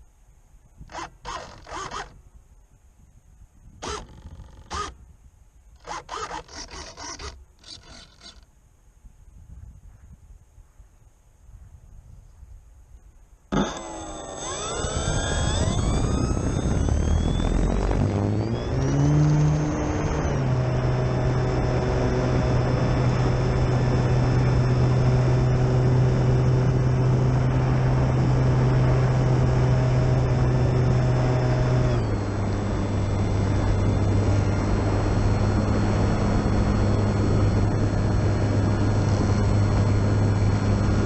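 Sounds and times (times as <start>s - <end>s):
model plane motor whining: 0.9s - 2.2s, 3.8s - 5.0s, 5.8s - 8.5s, 13.5s - 41.0s.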